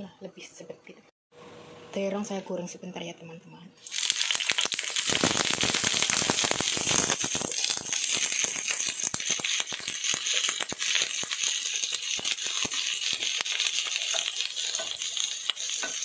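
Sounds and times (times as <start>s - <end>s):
eggplant sizzling in hot oil: 3.8s - 16.0s.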